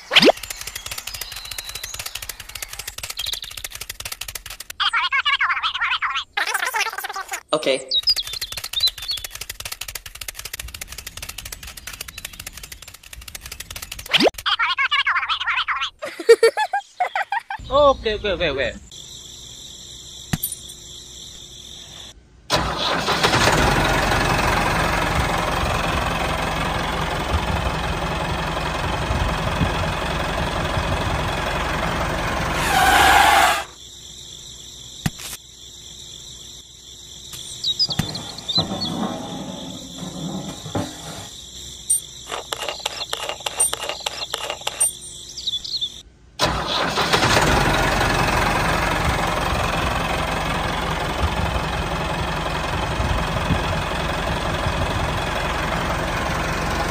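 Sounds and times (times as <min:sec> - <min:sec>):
engine running steadily: 0:22.5 - 0:32.9, 0:42.3 - 0:45.0, 0:46.4 - 0:56.9.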